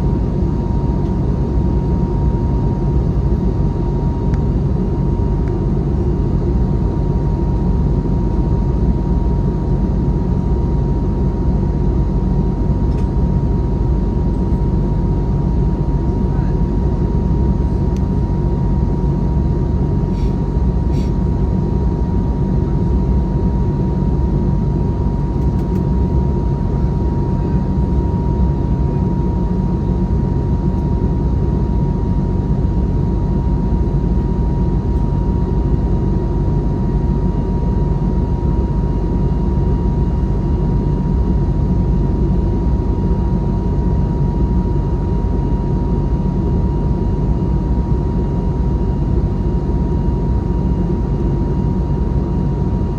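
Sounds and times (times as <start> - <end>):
aircraft cabin engine rumble: 0.0 - 52.9.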